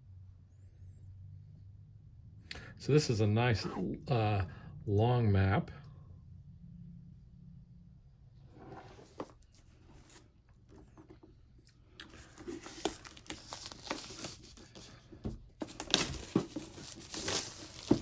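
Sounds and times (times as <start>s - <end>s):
cardboard rustling and crinkling: 12.1s - 18.0s.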